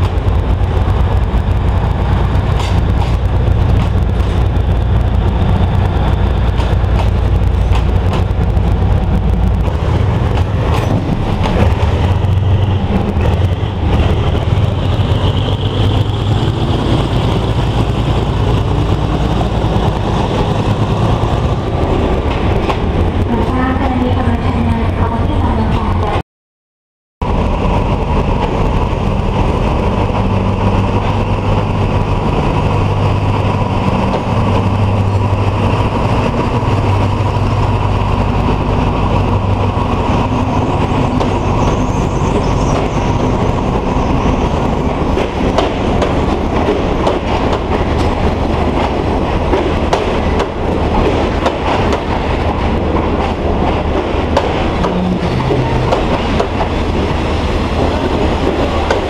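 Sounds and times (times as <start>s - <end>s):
diesel locomotive engine hum: 0.0s - 26.2s, 27.2s - 59.0s
train wheels clacking over rail joints: 2.4s - 21.0s, 45.1s - 59.0s.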